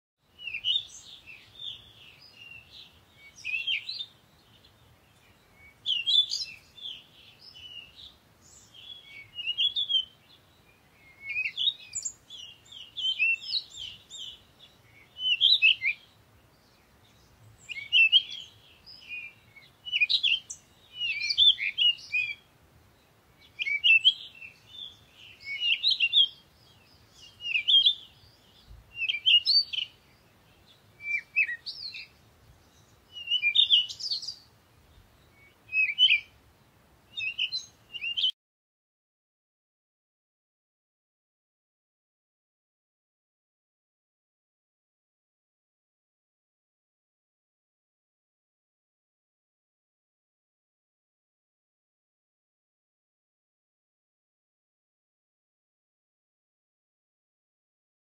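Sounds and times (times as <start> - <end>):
small birds chirping: 0.2 - 38.4.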